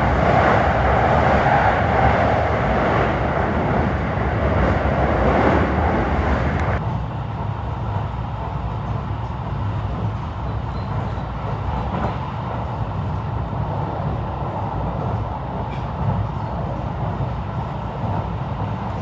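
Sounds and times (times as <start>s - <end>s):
electric train running rumble: 0.0s - 19.0s.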